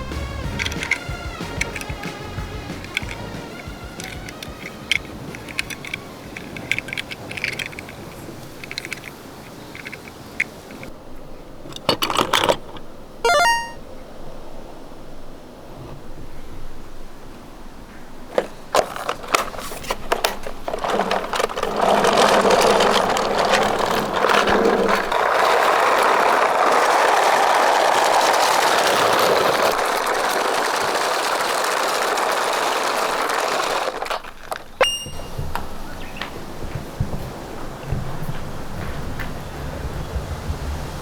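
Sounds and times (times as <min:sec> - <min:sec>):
toy vehicle rattling whir: 0:00.0 - 0:11.0, 0:11.7 - 0:13.7, 0:18.3 - 0:41.0
sharp plastic clicks: 0:00.5 - 0:10.9.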